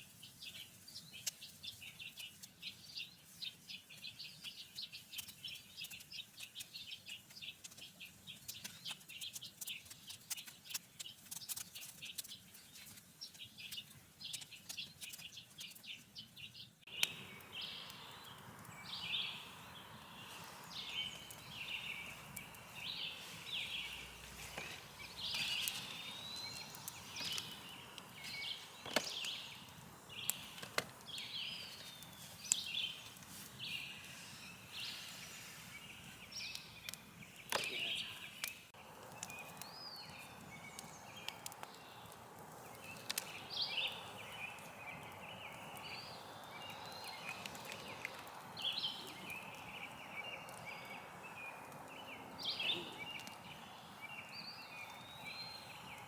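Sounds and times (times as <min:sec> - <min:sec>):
birds chirping: 0:00.0 - 0:56.0
bird calls: 0:00.5 - 0:56.0
steady hiss: 0:16.9 - 0:36.7.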